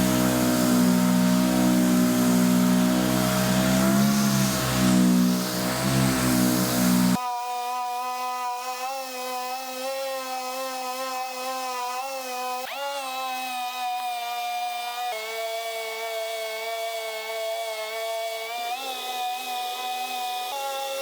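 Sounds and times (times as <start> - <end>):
power sander running: 0.0 - 7.2.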